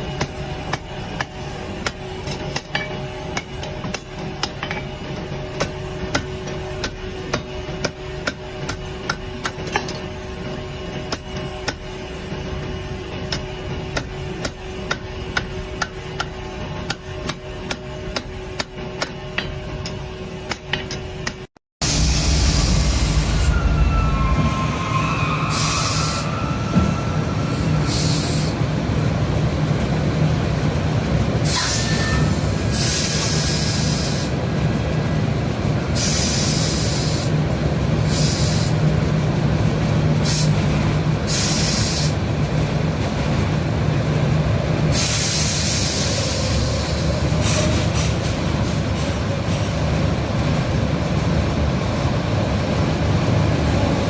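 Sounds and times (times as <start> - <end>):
heavy machinery rumbling: 0.0 - 36.5.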